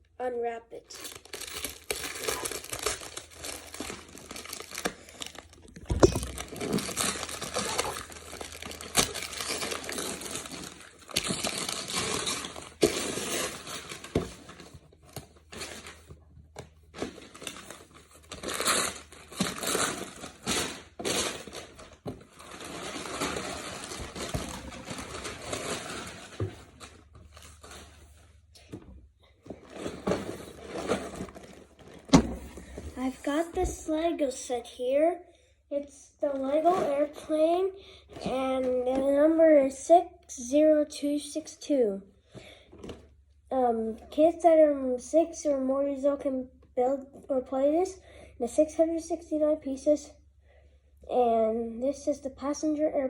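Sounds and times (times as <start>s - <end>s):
wrapping paper tearing and crinkling: 0.9s - 14.8s, 15.4s - 16.1s, 16.9s - 28.4s.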